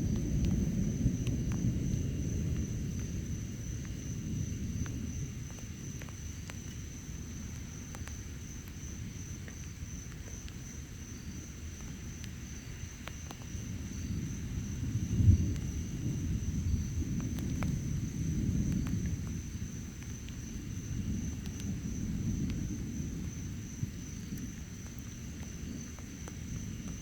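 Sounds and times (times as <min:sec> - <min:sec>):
distant thunder rumbling: 0:00.0 - 0:06.3, 0:13.6 - 0:27.0.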